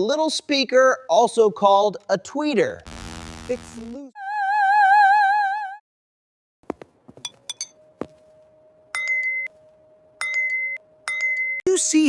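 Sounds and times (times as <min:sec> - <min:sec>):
glass clinks: 0:07.2 - 0:07.8, 0:09.0 - 0:09.5, 0:10.2 - 0:11.6
ringing tone from tapped glasses: 0:07.2 - 0:11.7.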